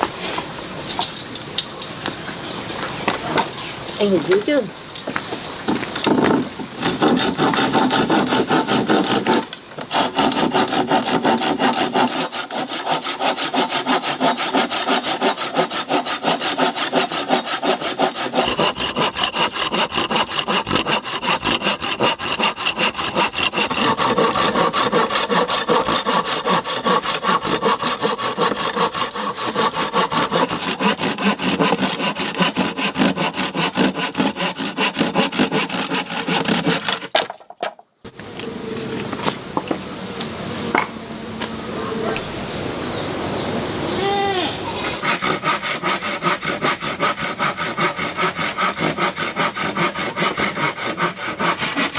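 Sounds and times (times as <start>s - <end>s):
hand saw cutting wood: 5.7s - 37.4s, 44.7s - 51.9s.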